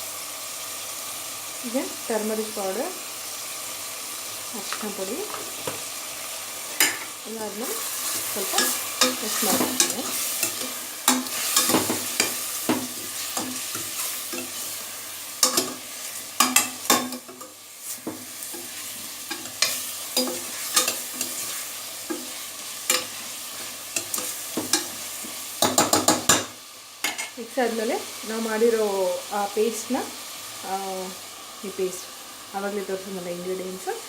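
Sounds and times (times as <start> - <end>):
chicken sizzling in oil: 0.0 - 34.0
spoon scraping and knocking pot: 8.1 - 14.7, 16.4 - 25.0.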